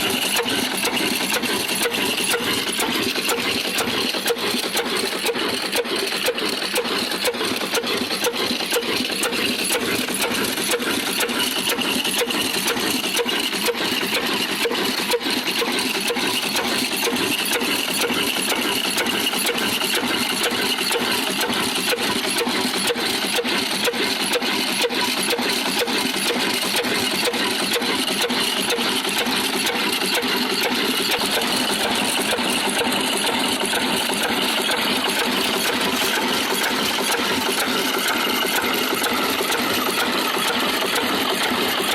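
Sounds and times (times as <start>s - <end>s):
diesel engine running: 0.0s - 41.9s
stone flour mill clatter: 0.0s - 41.9s.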